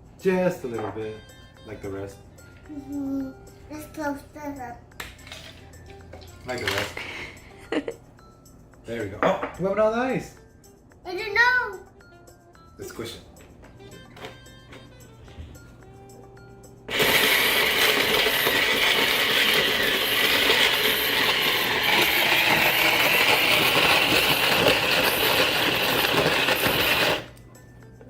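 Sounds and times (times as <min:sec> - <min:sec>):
snow cone maker grinding ice: 0:16.9 - 0:27.3.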